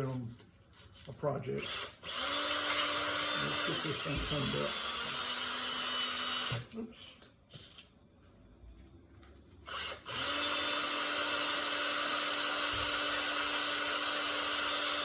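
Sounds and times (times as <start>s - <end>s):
power tool whining: 1.6s - 6.7s, 9.6s - 15.0s.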